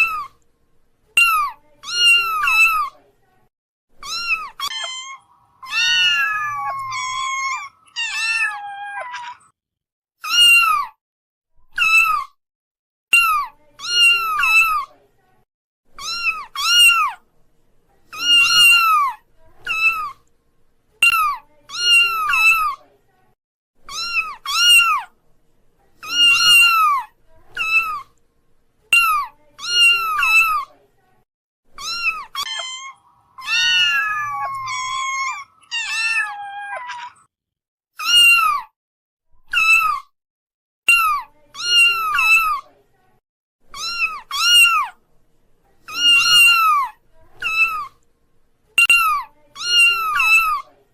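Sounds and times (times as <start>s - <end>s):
kittens meowing: 1.2s - 2.9s, 4.0s - 9.5s, 10.2s - 11.0s, 13.1s - 14.8s, 16.0s - 17.2s, 18.2s - 20.2s, 23.9s - 25.1s, 26.0s - 28.1s, 29.0s - 30.7s, 31.8s - 37.3s, 38.0s - 38.7s, 39.5s - 40.1s, 43.8s - 45.0s, 45.9s - 48.0s.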